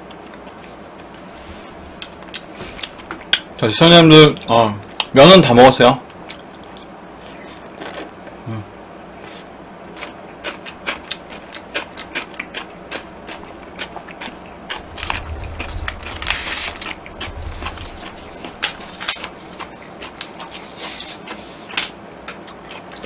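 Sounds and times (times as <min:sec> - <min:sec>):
wet chewing and mouth clicks: 0:10.0 - 0:23.0.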